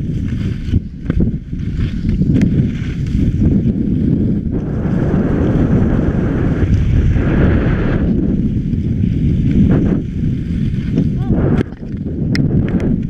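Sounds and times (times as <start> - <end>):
wind buffeting microphone: 0.0 - 13.0
hissing layer: 4.4 - 13.0.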